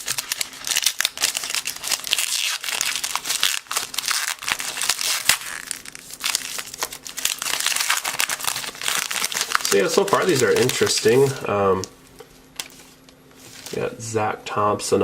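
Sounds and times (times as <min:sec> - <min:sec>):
wrapper crinkling and rustling: 0:00.0 - 0:11.9.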